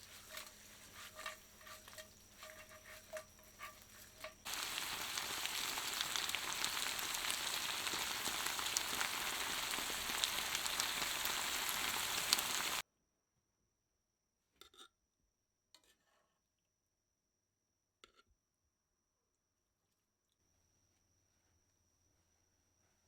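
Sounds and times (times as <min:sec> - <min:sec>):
food frying in hot oil: 0:00.0 - 0:12.8.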